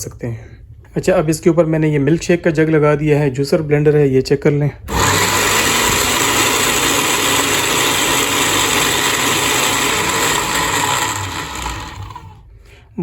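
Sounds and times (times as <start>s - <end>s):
blender motor whirring: 4.9s - 12.5s.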